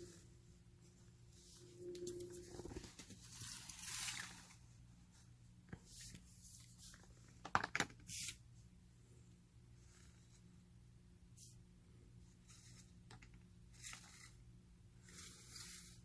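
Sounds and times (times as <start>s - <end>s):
faint low hum: 0.0s - 7.4s.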